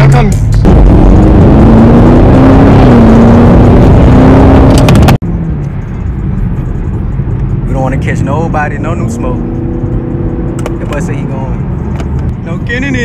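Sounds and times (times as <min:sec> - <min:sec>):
car engine revving high: 0:00.6 - 0:05.2, 0:07.5 - 0:12.2.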